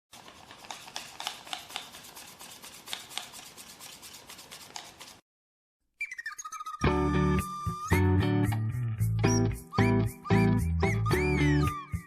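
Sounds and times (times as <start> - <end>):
music: 6.0 - 12.0.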